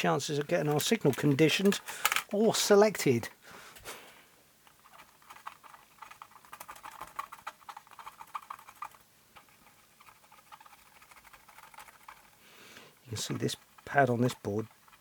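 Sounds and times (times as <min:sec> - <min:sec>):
light clicking and scratching: 0:00.3 - 0:02.3, 0:04.6 - 0:12.4, 0:13.0 - 0:15.0.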